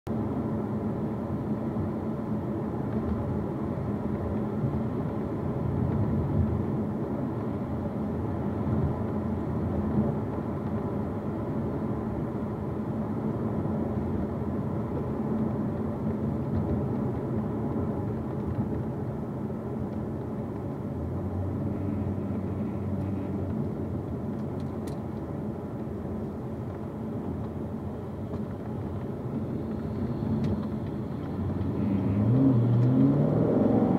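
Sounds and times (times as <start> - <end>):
car road and drivetrain drone: 0.1 - 33.9
small rattle in car: 14.8 - 19.2.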